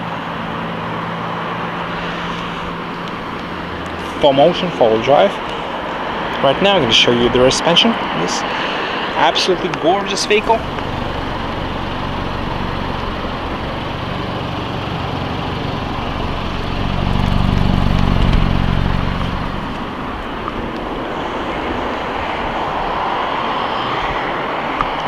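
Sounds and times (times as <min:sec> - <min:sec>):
motor vehicle noise: 0:00.0 - 0:25.0
low rumble: 0:10.3 - 0:24.0.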